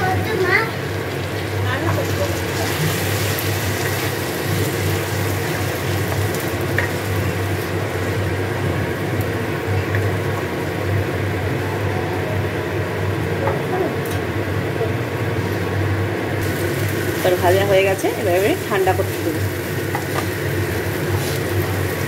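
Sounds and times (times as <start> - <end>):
vegetables sizzling in oil: 0.0 - 11.6, 16.3 - 22.0
steady low hum: 0.0 - 22.0.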